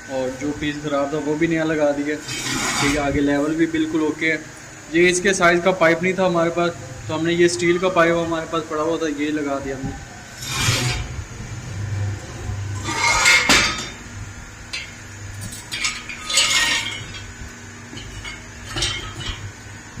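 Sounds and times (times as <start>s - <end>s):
low steady hum: 0.0s - 20.0s
metal parts clinking: 12.8s - 14.0s, 14.7s - 19.5s.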